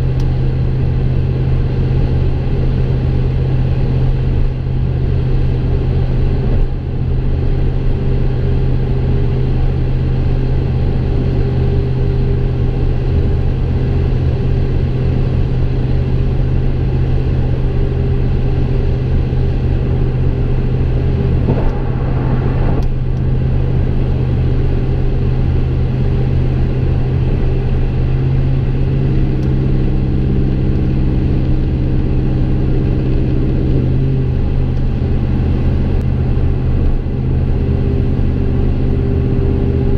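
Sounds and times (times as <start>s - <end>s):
truck engine exhaust drone: 0.0s - 39.9s
higher drone tone: 20.3s - 25.6s.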